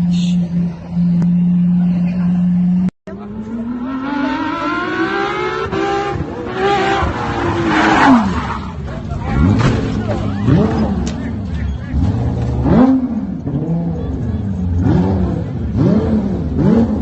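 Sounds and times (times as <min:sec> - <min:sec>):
car engine accelerating hard: 0:00.4 - 0:17.0.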